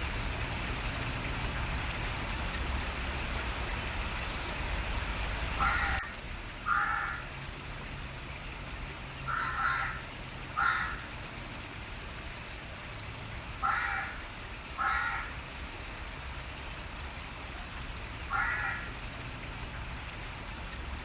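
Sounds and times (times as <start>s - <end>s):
running water hiss: 0.0s - 21.0s
bird cawing harshly: 5.6s - 6.1s, 6.7s - 7.3s, 9.3s - 10.0s, 10.6s - 11.1s, 13.6s - 14.2s, 14.8s - 15.4s, 18.3s - 18.9s.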